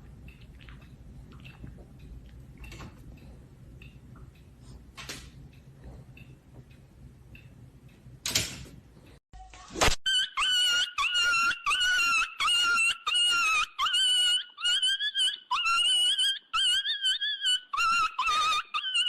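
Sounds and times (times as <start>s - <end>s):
dog whining: 10.1s - 19.0s.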